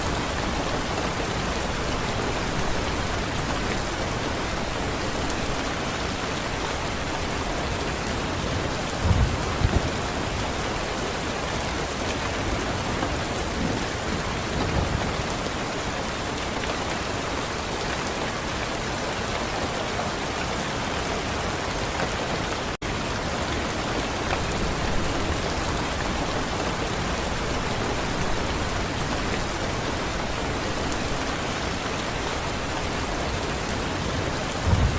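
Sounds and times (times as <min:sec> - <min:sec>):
heavy rain hissing: 0:22.2 - 0:34.9.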